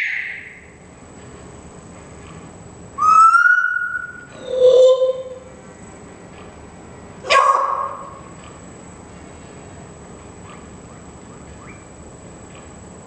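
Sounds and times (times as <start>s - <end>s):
animal bark-like call: 7.2s - 8.2s.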